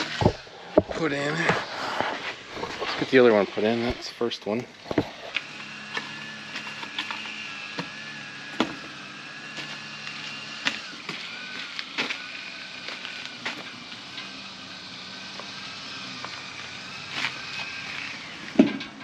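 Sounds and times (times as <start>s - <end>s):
steady high whine: 0.0s - 19.0s.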